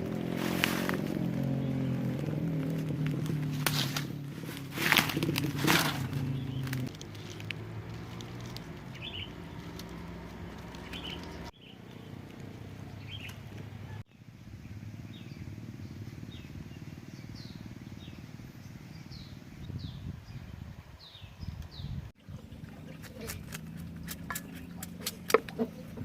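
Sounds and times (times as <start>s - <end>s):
high bird chirps: 8.9s - 10.0s, 10.6s - 12.2s, 12.9s - 23.0s.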